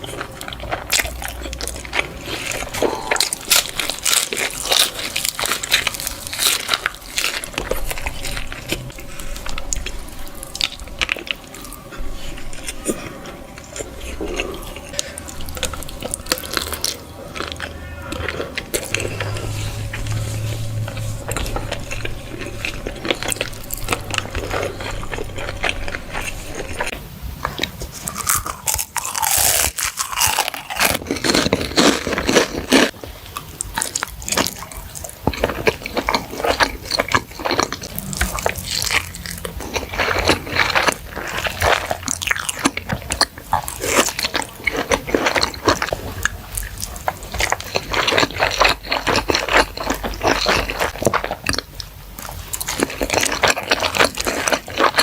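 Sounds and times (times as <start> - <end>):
biting and chewing: 0.0 - 55.0.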